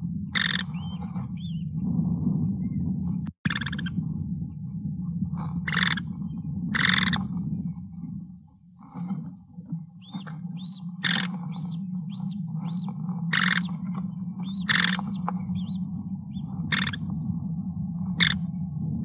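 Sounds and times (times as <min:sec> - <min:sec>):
low hum: 0:00.0 - 0:19.0
harsh noisy bird calls: 0:00.4 - 0:01.7, 0:03.5 - 0:04.0, 0:05.6 - 0:06.1, 0:06.7 - 0:07.3, 0:10.0 - 0:13.8, 0:14.4 - 0:17.1, 0:18.2 - 0:18.4
thin arched bird chirps: 0:00.4 - 0:01.7, 0:03.5 - 0:04.0, 0:05.7 - 0:06.1, 0:10.0 - 0:13.8, 0:14.4 - 0:17.0.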